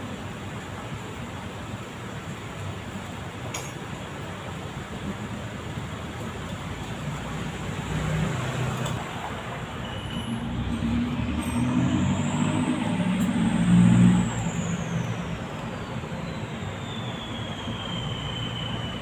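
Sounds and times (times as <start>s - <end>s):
vehicle passing by: 7.1s - 16.3s.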